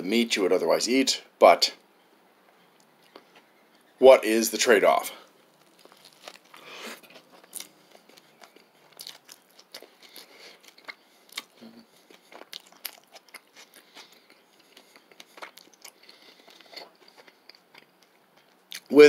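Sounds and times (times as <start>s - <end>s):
person chewing crunchy food: 5.3s - 18.9s.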